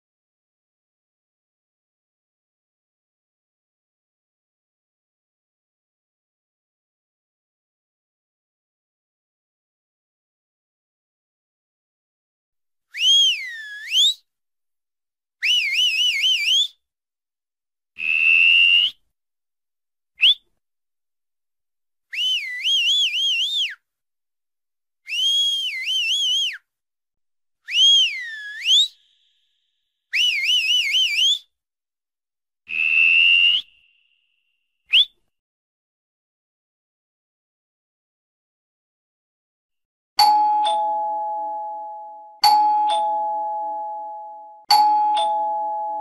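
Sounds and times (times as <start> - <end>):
person whistling through fingers: 12.9 - 14.3, 15.4 - 16.8, 18.1 - 19.0, 20.2 - 20.5, 22.1 - 23.8, 25.1 - 26.7, 27.7 - 29.2, 30.1 - 31.5, 32.8 - 33.8, 34.9 - 35.2.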